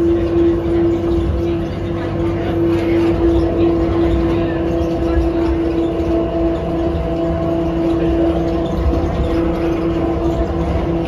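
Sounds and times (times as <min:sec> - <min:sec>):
train motor hum: 0:00.0 - 0:11.0
train rumbling through a tunnel: 0:00.0 - 0:11.0.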